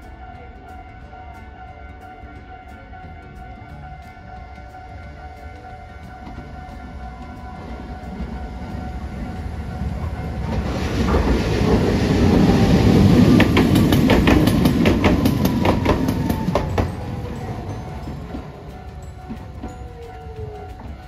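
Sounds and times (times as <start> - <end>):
tram rumble passing: 0.0 - 21.0
wheel clicks over rail joints: 10.0 - 21.0.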